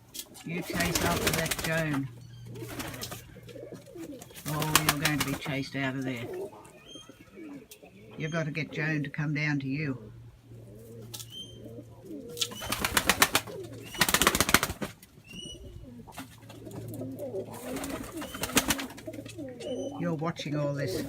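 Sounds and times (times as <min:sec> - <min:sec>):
doves cooing: 0:00.0 - 0:09.0, 0:09.6 - 0:21.0
wing flapping: 0:00.6 - 0:05.6, 0:12.3 - 0:15.1, 0:16.1 - 0:19.5.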